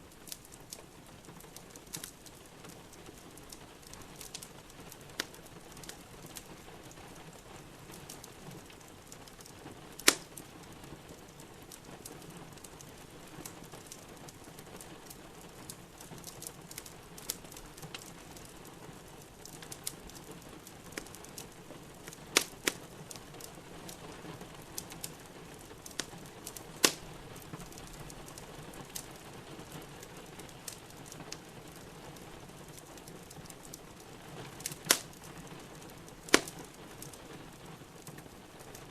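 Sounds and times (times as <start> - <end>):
fire popping: 0.0 - 38.9
rain pattering: 0.0 - 38.9
wood fire crackling: 0.0 - 38.9.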